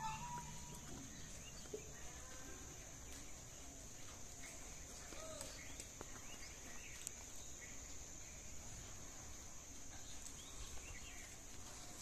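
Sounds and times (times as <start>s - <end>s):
bird chirps: 0.0s - 2.4s
steady high-pitched hiss: 0.0s - 12.0s.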